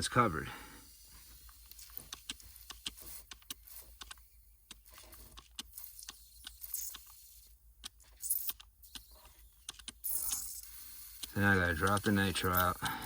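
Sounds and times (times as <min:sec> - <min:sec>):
gas hissing from a leak: 0:00.0 - 0:03.9, 0:08.2 - 0:13.0
handling clicks and crackles: 0:01.4 - 0:07.2, 0:07.8 - 0:10.5, 0:11.2 - 0:13.0.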